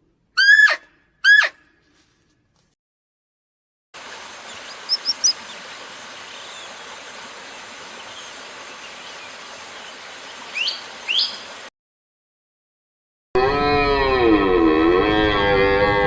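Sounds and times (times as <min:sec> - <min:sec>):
steady outdoor hiss: 0:04.0 - 0:11.7
sweeping bird calls: 0:04.1 - 0:11.7
high bird chirps: 0:04.5 - 0:05.6, 0:10.5 - 0:11.5.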